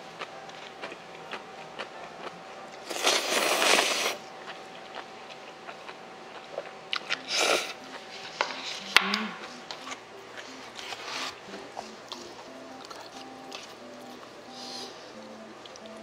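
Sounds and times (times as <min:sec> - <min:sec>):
person chewing noodles: 0:00.0 - 0:08.1, 0:10.4 - 0:16.0
faint background music: 0:00.0 - 0:16.0
noodle slurp: 0:02.9 - 0:04.2.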